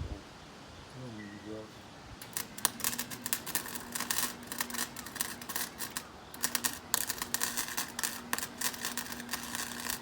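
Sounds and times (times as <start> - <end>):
arc welder crackling: 2.2 - 10.0.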